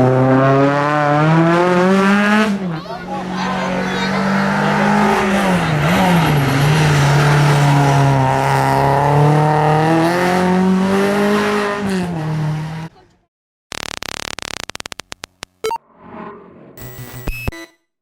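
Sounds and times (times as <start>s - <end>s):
racing car engine at high revs: 0.0s - 12.9s.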